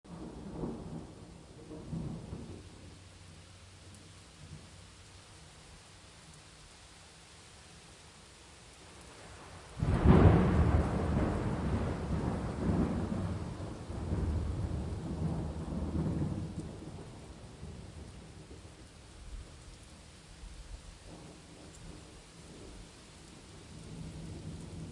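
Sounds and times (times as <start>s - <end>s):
thunderclap rolling into rumble: 0.1s - 2.7s, 9.8s - 18.7s
steady rain: 0.1s - 24.9s.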